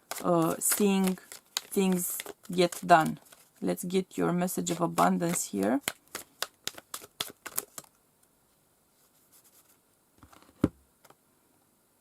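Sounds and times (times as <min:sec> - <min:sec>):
card tapping: 0:00.0 - 0:03.4, 0:04.7 - 0:07.9
cards shuffling: 0:00.0 - 0:03.6, 0:04.5 - 0:08.0.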